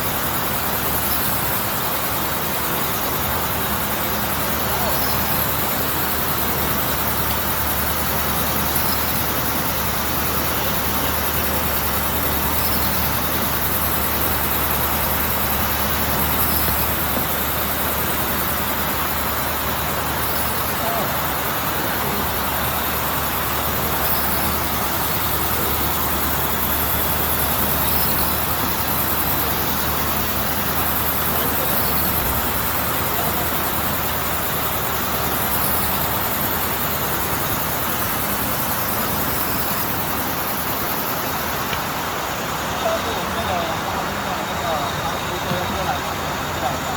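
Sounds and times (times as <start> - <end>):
meat bandsaw running: 0.0 - 41.5.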